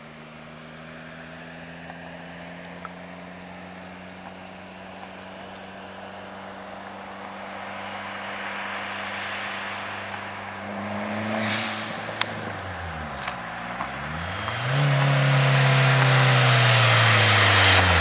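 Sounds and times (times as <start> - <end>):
car engine idling: 0.0 - 18.0
cricket chirping: 0.0 - 18.0
rushing noise: 7.6 - 18.0.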